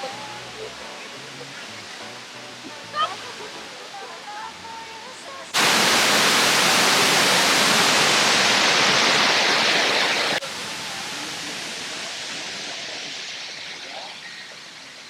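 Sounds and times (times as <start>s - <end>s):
loud rushing noise: 5.6s - 10.5s.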